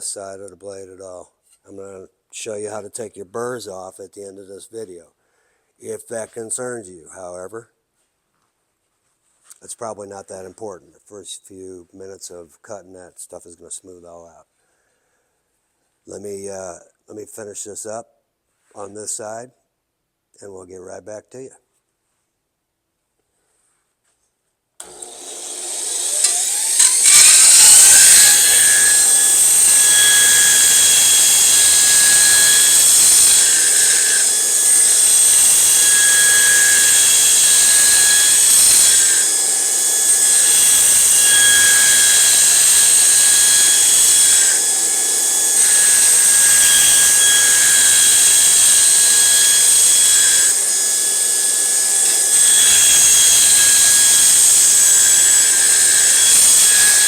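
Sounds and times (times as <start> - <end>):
belt grinder whining: 24.8 - 57.0
steel blade grinding on belt: 24.8 - 57.0.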